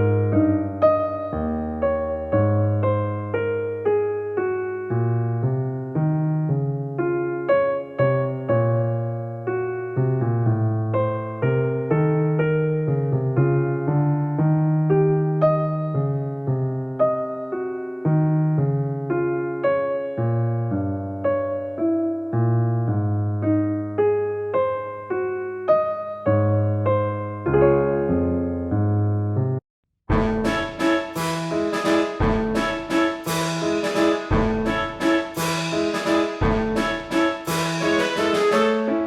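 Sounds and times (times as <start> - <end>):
piano melody over bass notes: 0.0 - 39.0.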